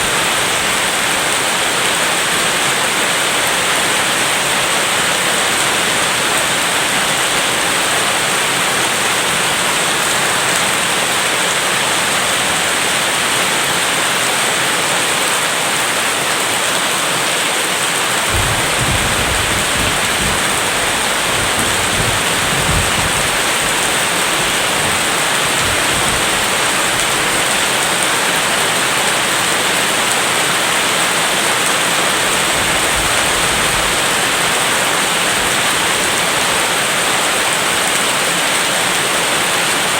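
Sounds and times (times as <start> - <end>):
heavy rain: 0.0 - 39.9
distant thunder rumbling: 18.3 - 27.6.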